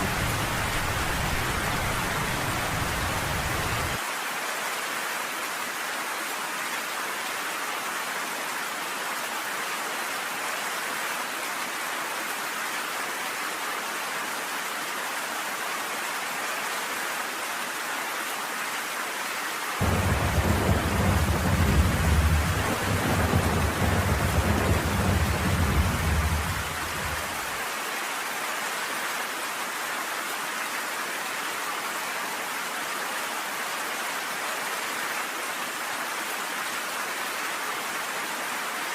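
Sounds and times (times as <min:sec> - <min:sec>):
low rumble of thunder: 0:00.0 - 0:04.0, 0:19.8 - 0:27.6
steady rain falling: 0:00.0 - 0:38.9.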